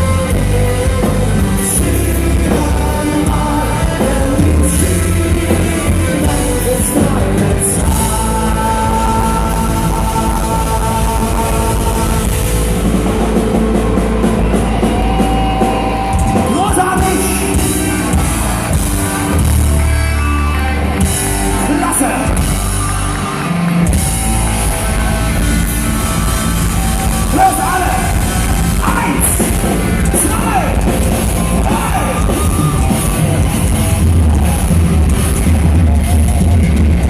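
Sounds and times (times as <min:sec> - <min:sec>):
folk-metal band playing live: 0:00.0 - 0:37.0
singer shouting vocals: 0:15.1 - 0:19.2, 0:21.5 - 0:22.6, 0:25.0 - 0:33.3.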